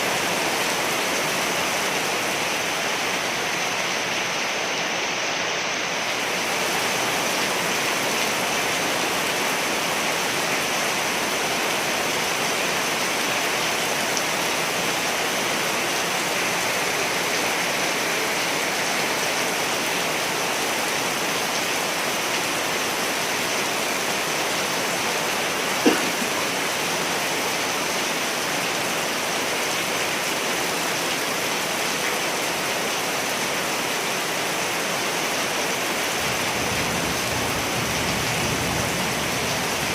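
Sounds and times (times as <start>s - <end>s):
steady rain: 0.0s - 39.9s
sharp drip: 25.8s - 26.4s.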